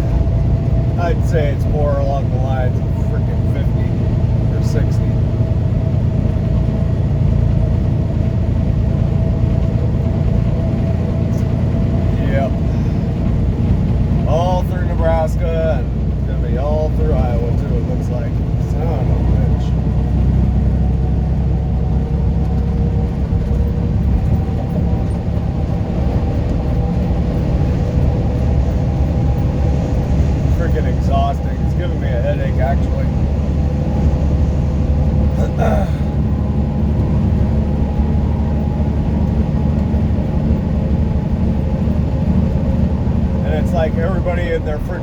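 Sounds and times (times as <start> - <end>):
truck engine and road noise: 0.0 - 45.0.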